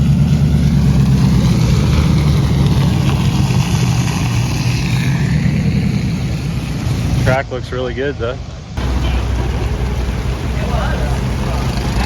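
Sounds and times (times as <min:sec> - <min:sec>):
vehicle engine humming: 0:00.0 - 0:07.3, 0:08.2 - 0:12.0.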